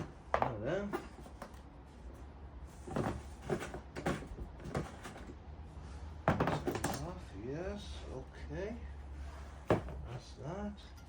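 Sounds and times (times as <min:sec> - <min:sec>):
hard parts and packaging handled: 0:00.0 - 0:05.4, 0:06.2 - 0:07.2.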